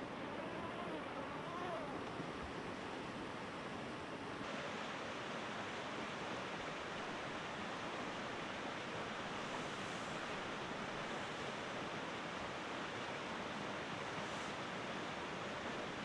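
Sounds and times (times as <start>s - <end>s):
river rushing: 0.0s - 16.0s.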